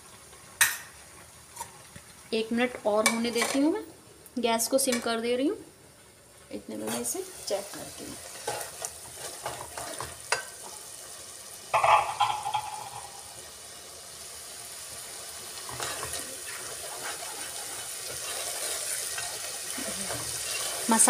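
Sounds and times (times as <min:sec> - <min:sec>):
masala sizzling in oil: 0:00.0 - 0:21.0
utensil clatter: 0:11.8 - 0:13.2
ladle stirring: 0:15.7 - 0:20.9.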